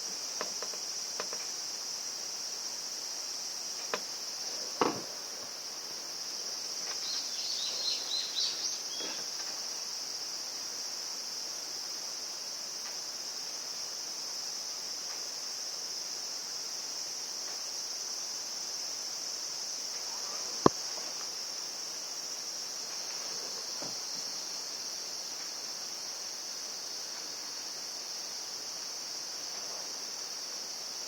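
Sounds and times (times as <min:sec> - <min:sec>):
insects chirping: 0:00.0 - 0:31.0
louder knock: 0:04.8 - 0:05.1.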